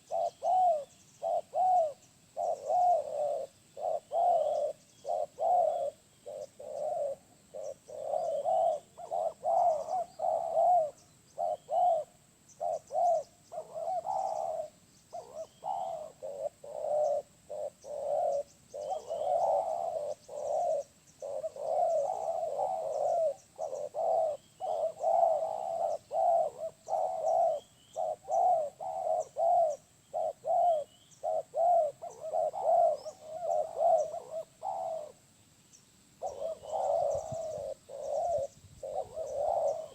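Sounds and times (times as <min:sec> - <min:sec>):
doves cooing: 0:00.0 - 0:35.3, 0:36.2 - 0:39.9
small birds chirping: 0:00.0 - 0:39.9.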